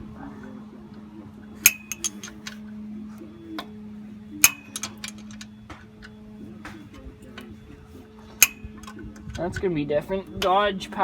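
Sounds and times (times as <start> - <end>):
steady low hum: 0.0 - 11.0
metal wrench clicking and clinking: 1.7 - 2.6, 4.4 - 5.5, 8.4 - 9.0.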